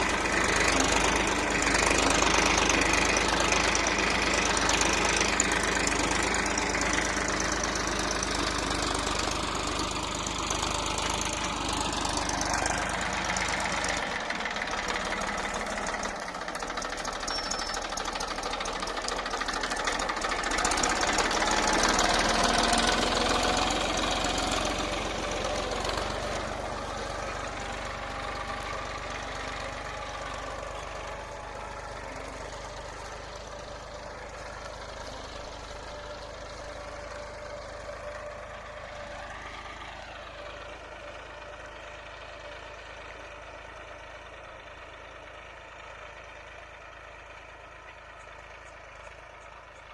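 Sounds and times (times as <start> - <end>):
diesel tractor engine clattering: 0.0 - 49.9.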